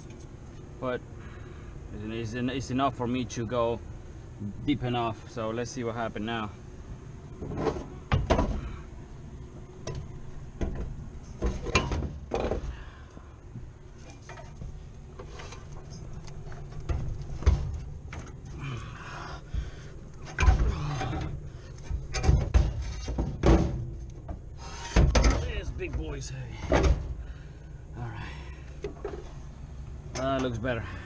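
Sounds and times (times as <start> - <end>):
steady low rumble: 0.0 - 31.0
metal clunks and knocks: 7.4 - 8.7, 9.8 - 12.8, 14.0 - 18.5, 20.2 - 27.2, 28.8 - 29.4.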